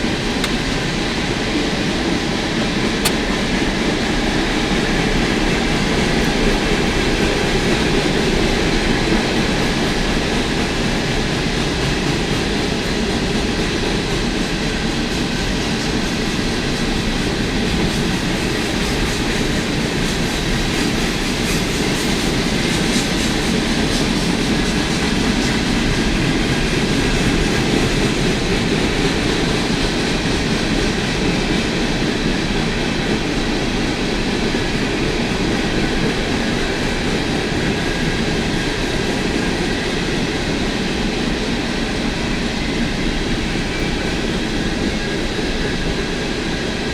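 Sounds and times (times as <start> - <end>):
freight train wheels on rails: 0.0 - 46.9.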